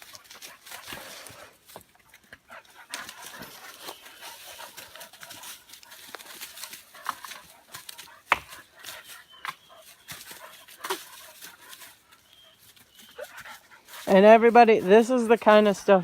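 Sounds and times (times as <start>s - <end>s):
dog gnawing plastic pipe: 0.0s - 12.4s.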